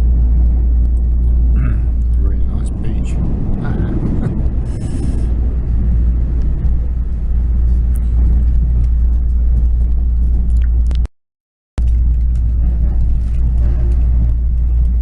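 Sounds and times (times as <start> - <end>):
train rumble inside carriage: 0.0 - 11.1, 11.8 - 15.0.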